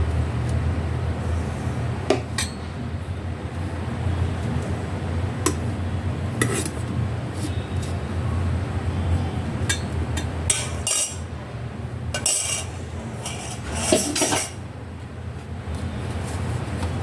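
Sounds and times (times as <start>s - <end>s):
steady low hum: 0.0s - 17.0s
metal utensils clinking on cookware: 9.6s - 11.3s, 12.2s - 14.6s.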